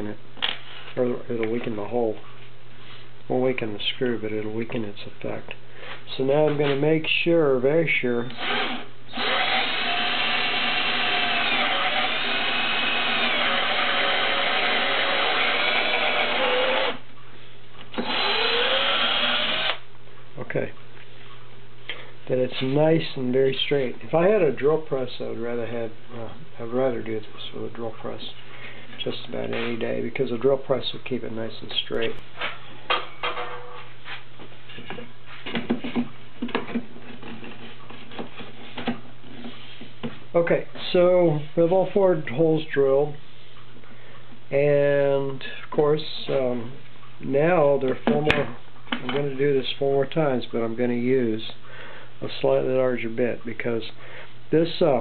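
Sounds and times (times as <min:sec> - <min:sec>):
cordless drill boring into wood: 0:08.3 - 0:17.0, 0:17.9 - 0:19.8.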